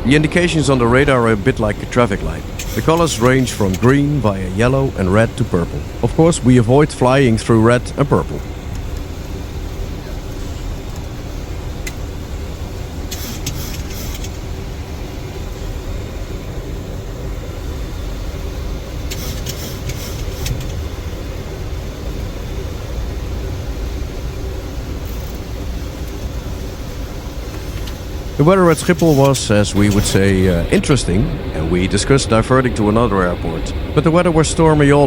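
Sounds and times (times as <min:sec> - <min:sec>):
cockpit airflow and engine rumble: 0:00.0 - 0:35.0
faint hum: 0:00.0 - 0:35.0
short bursts of hiss: 0:13.1 - 0:14.4, 0:19.1 - 0:20.7.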